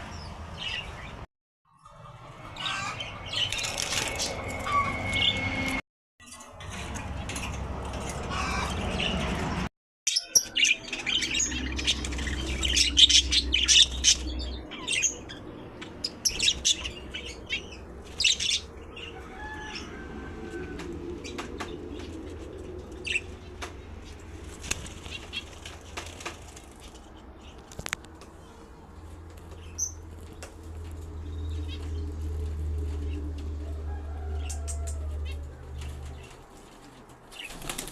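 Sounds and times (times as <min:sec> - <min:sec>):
bird wings flapping: 0:24.3 - 0:27.9, 0:35.6 - 0:37.9.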